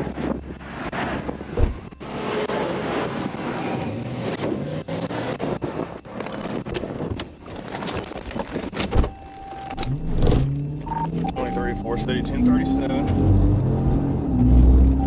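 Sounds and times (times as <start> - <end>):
vehicle engine revving: 0.0 - 6.7, 9.7 - 15.0.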